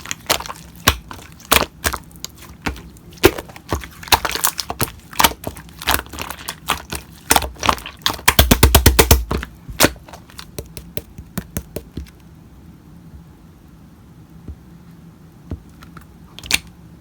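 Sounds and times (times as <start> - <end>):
slime popping and crackling: 0.0 - 11.9.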